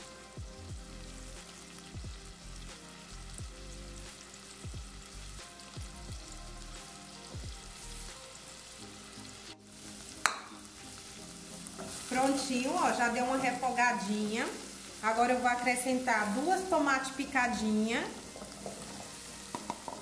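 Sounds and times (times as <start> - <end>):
background music: 0.0 - 20.0
onion frying in butter: 0.2 - 20.0
wooden spoon knocking on pan: 10.2 - 10.5, 18.3 - 20.0.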